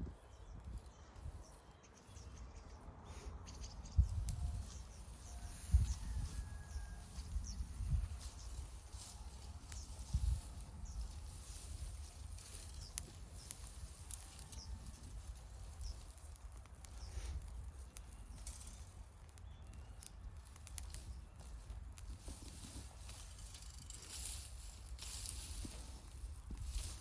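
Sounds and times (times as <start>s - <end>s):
wind rumble on microphone: 0.0s - 1.6s, 2.2s - 19.0s, 19.6s - 27.0s
bonfire crackling and popping: 7.0s - 27.0s.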